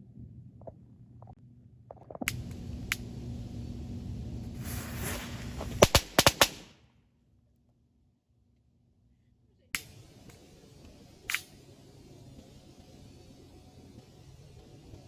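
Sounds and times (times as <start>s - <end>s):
click: 2.3s - 3.1s, 9.8s - 11.6s
firecracker fuse hissing: 2.3s - 6.7s, 9.8s - 15.0s
firecracker bangs: 4.5s - 6.8s.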